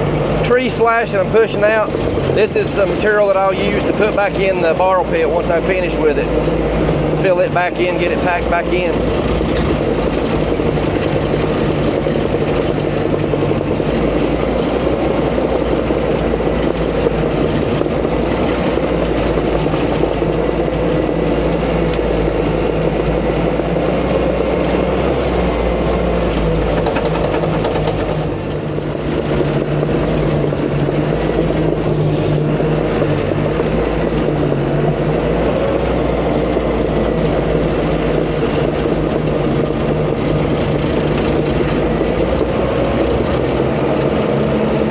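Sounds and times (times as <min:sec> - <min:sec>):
bulldozer diesel engine running: 0:00.0 - 0:44.9.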